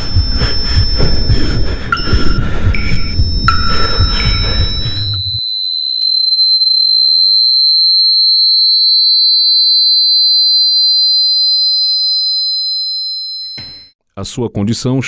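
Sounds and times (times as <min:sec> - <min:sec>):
rising electronic sine tone: 0:00.0 - 0:11.9
steady electronic sine tone: 0:00.0 - 0:12.4.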